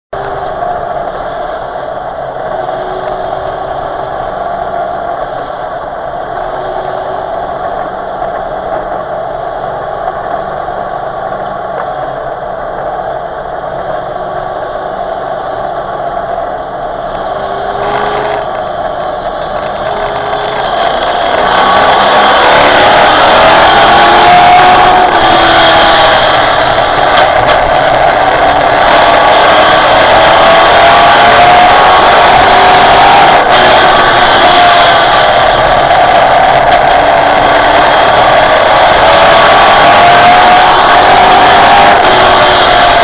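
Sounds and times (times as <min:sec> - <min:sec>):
truck engine revving: 0:10.6 - 0:43.0.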